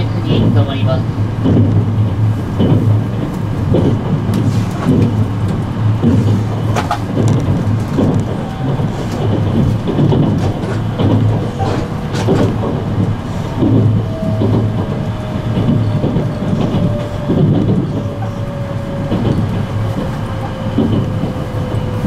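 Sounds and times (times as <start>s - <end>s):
track knocks and clicks: 0.0s - 22.0s
train wheels rumbling on rail: 0.0s - 22.0s.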